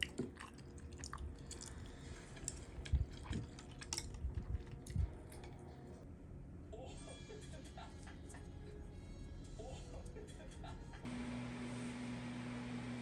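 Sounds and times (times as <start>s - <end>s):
person chewing food: 0.0s - 5.8s.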